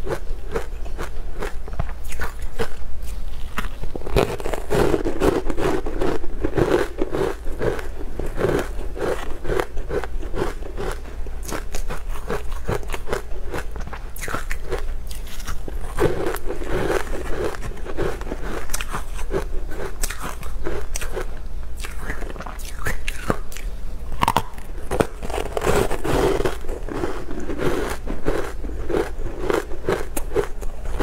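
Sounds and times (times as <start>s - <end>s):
crunchy chewing: 0.0s - 31.0s.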